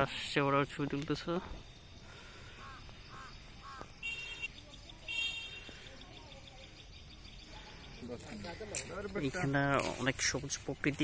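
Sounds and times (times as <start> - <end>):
faint bird calls: 2.0 - 8.7.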